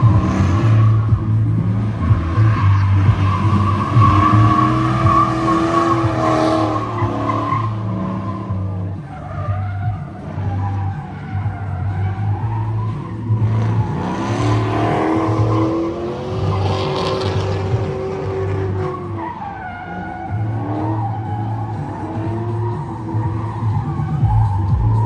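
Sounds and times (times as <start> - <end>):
car engine revving hard: 0.0 - 25.0
tires squealing and skidding: 0.0 - 25.0.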